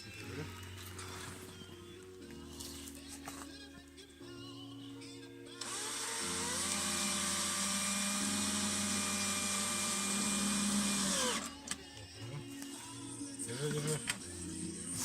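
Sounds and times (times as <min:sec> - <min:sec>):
electric drill running: 0:05.6 - 0:11.6.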